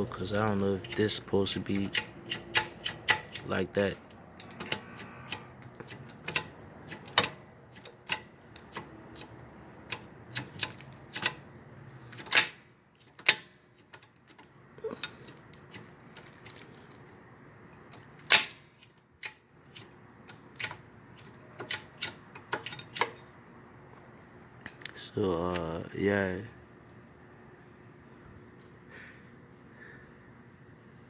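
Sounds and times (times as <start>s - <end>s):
metal tools clicking and knocking: 0.0s - 3.6s.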